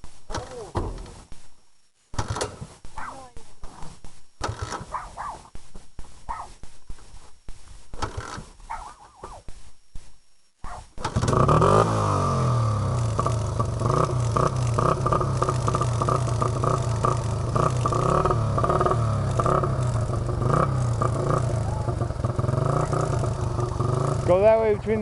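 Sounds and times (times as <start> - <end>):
dirt bike engine starting and idling: 2.2 - 2.7, 4.4 - 4.9, 8.0 - 8.5, 11.0 - 25.0.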